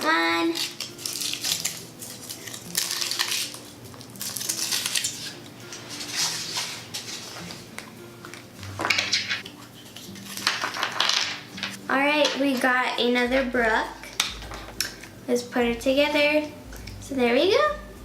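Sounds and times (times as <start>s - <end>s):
foil wrapper crinkling: 0.3s - 11.8s.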